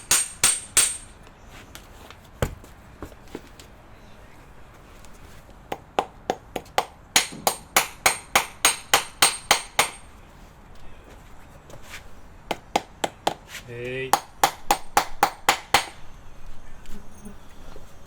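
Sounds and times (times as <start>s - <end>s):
hammer striking metal: 0.0s - 1.2s, 7.2s - 10.1s.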